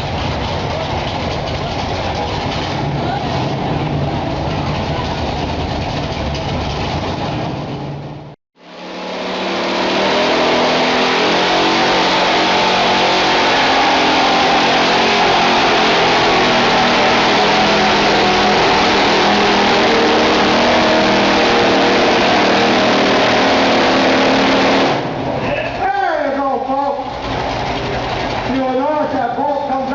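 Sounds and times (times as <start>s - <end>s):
truck engine at full throttle: 0.0s - 25.8s, 26.9s - 29.9s.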